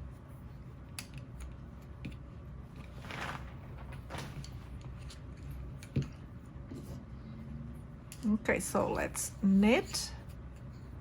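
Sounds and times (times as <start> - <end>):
yarn rustling: 2.8 - 5.0.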